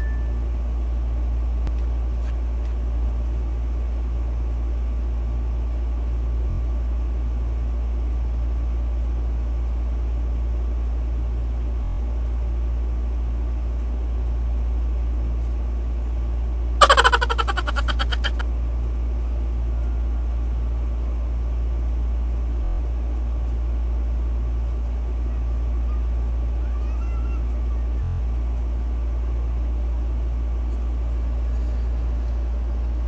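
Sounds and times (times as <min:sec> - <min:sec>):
low rumbling hum: 0:00.0 - 0:33.0
loud rapidly pulsing sound: 0:16.8 - 0:18.4.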